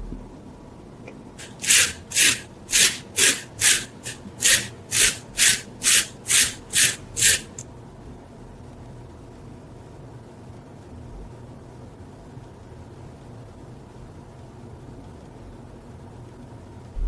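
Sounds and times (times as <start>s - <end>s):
hand tool scraping rusty metal: 1.4s - 7.6s.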